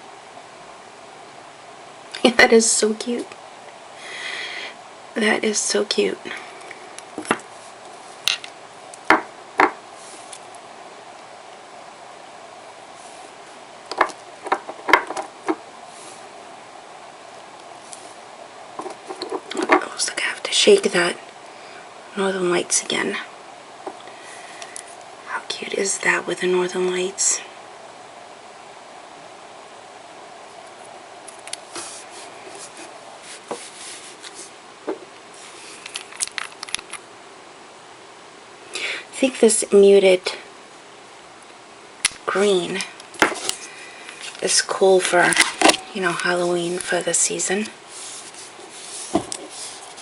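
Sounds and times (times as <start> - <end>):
faint steady hiss: 0.0 - 50.0
soft scraping and rubbing: 31.7 - 34.6, 46.2 - 50.0.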